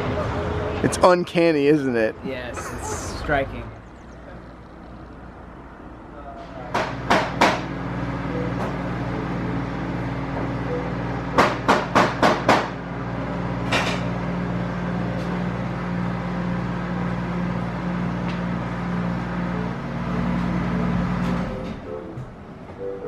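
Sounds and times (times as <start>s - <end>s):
sharp knocks: 6.7s - 7.7s, 11.4s - 12.8s.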